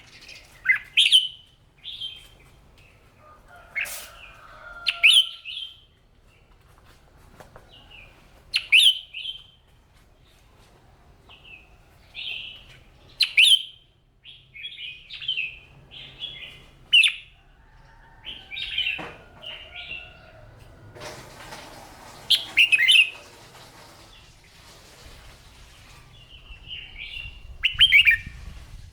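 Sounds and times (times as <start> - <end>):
bird warbling: 22.3 - 23.5.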